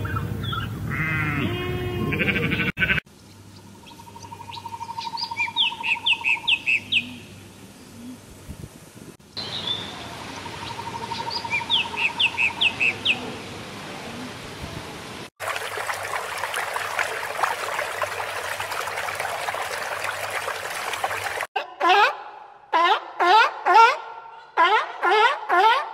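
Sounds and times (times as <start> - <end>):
water splashing and trickling: 15.2 - 21.5.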